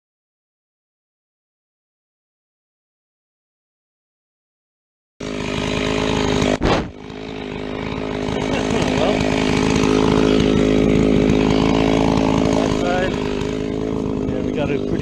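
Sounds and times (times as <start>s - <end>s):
chainsaw cutting a log: 5.2s - 15.0s.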